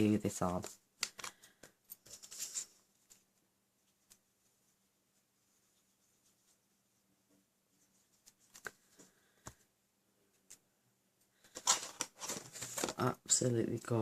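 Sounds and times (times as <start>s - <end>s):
paper crinkly rustling: 0.6s - 4.5s, 11.4s - 13.1s.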